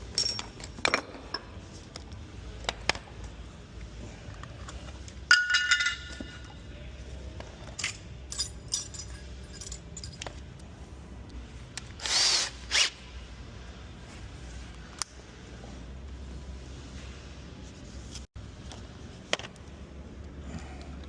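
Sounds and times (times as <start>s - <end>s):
metal tools clinking: 0.0s - 1.5s, 5.3s - 6.6s, 7.6s - 10.5s.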